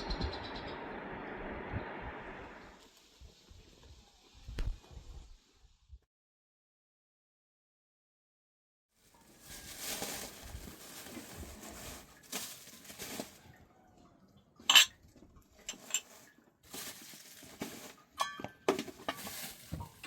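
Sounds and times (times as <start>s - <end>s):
rustling and scraping objects: 9.0s - 13.6s, 14.6s - 20.0s.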